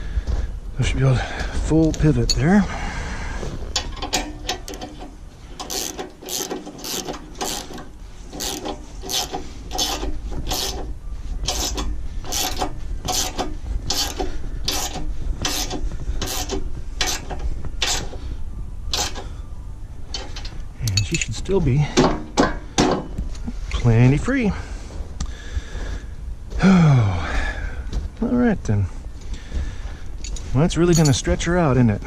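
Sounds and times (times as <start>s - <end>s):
ratchet wrench clicking: 5.6s - 18.1s, 18.9s - 19.2s.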